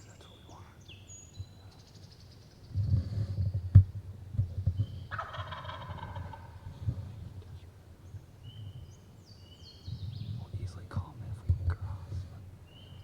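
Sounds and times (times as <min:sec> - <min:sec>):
turkey gobbling: 0:05.1 - 0:06.7.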